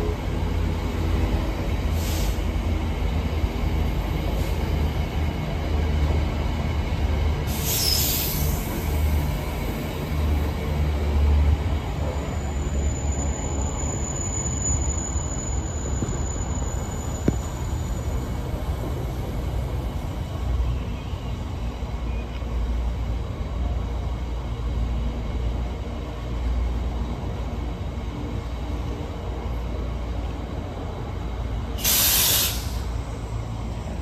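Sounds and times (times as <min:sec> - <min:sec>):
freight train wheels rumbling on rails: 0:00.0 - 0:34.0
train wheels screeching: 0:07.5 - 0:09.7, 0:11.8 - 0:19.0.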